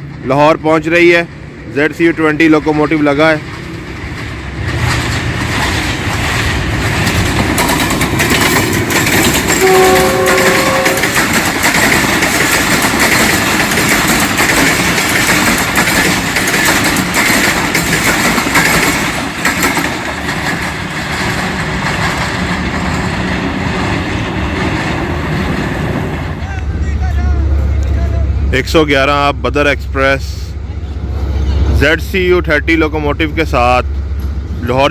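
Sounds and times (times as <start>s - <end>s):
train wheels clattering over rails: 0.0s - 28.1s
train horn blast: 9.5s - 11.3s.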